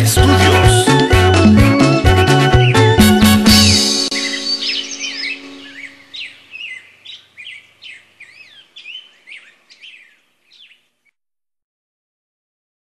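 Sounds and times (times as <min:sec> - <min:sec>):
birds sweeping calls: 0:02.5 - 0:10.9.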